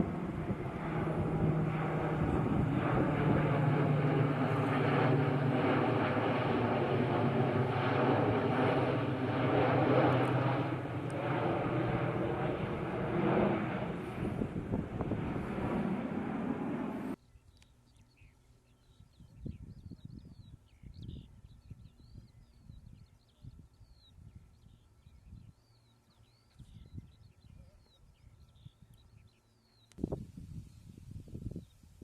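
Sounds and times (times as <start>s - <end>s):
propeller plane flying past: 0.0s - 17.2s.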